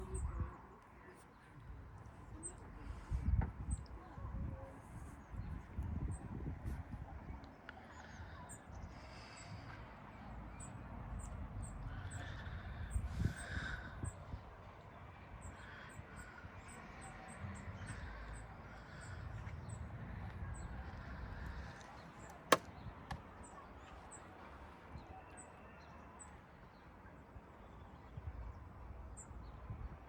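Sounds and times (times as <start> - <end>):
low wind-like rumble: 0.0 - 0.8, 1.5 - 14.6.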